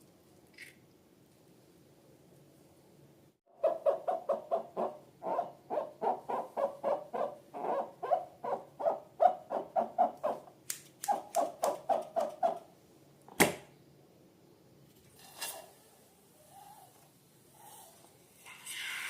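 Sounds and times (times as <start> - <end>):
sharp snap: 10.6 - 11.8, 13.3 - 13.7.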